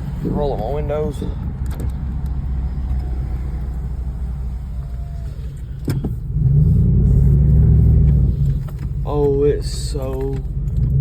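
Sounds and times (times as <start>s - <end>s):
truck engine revving: 0.0s - 8.8s.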